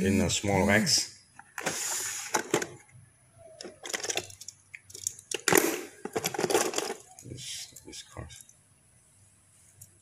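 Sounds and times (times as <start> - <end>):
sliding scrape: 1.6 - 2.6
toy cars clattering in plastic box: 3.6 - 7.3.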